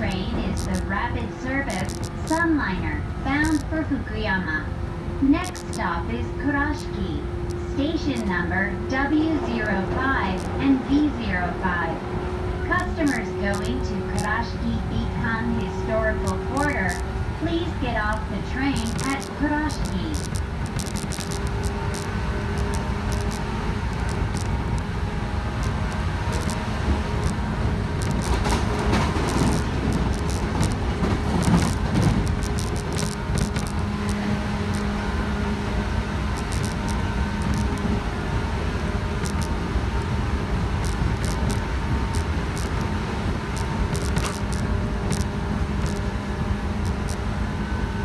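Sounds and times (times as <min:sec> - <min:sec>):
train motor and gear hum: 0:00.0 - 0:48.0
wheels rumbling on rail: 0:00.0 - 0:48.0
sharp rail clicks: 0:16.2 - 0:17.0, 0:18.0 - 0:34.9, 0:36.3 - 0:38.0, 0:39.1 - 0:39.6, 0:40.8 - 0:46.1, 0:46.8 - 0:47.2.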